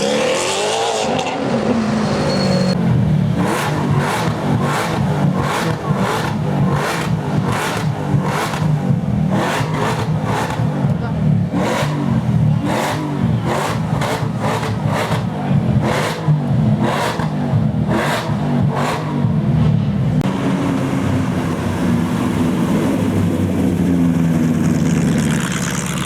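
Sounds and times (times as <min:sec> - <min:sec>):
car engine running: 0:01.2 - 0:26.0
voices: 0:10.8 - 0:16.6.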